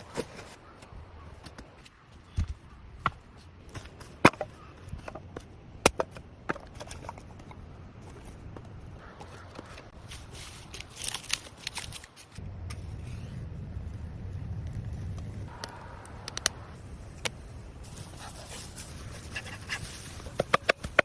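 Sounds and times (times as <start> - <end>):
crunching and crackling: 9.7 - 12.4
steady low rumble: 12.4 - 19.6.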